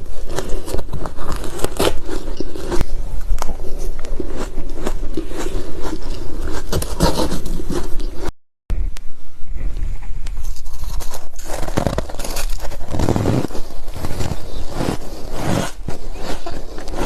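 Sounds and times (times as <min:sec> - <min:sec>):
ice crunching between teeth: 0:00.2 - 0:02.8.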